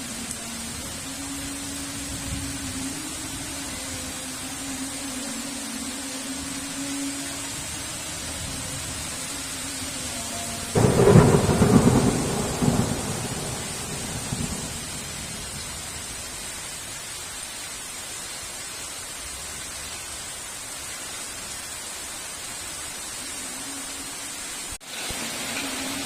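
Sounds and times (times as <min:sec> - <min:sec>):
heavy rain hiss: 0:00.0 - 0:26.0
thunder cracks and rumbling: 0:10.8 - 0:15.9.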